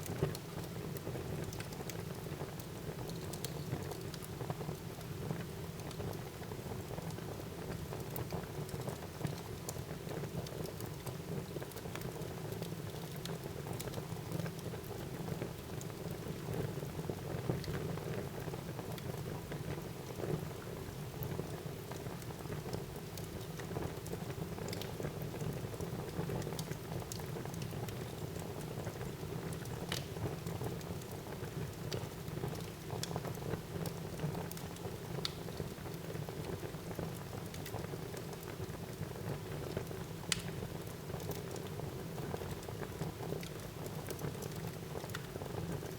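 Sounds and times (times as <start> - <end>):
fire burning with crackles and pops: 0.0 - 45.9.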